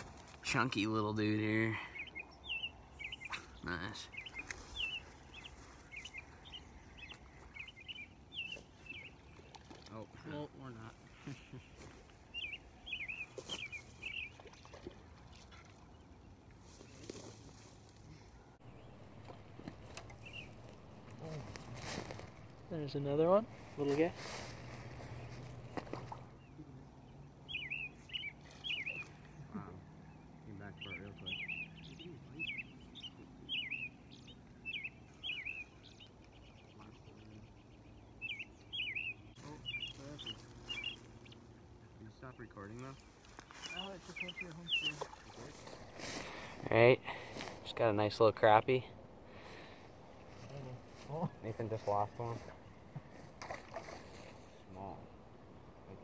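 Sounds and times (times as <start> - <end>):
bird chirping: 0.0 - 14.9, 18.2 - 56.0
buzzy bird trill: 18.6 - 25.8.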